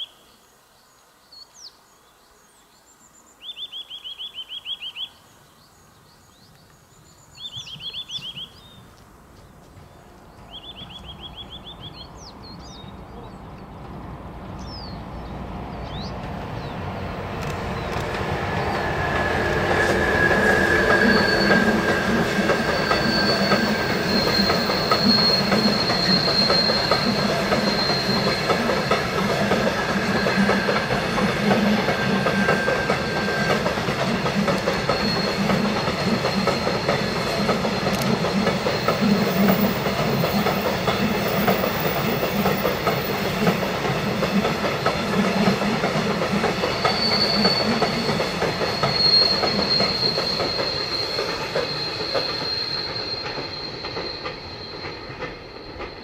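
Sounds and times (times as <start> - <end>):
train rumble and rail clatter: 6.3 - 56.0
wheel squeal against rails: 17.4 - 56.0.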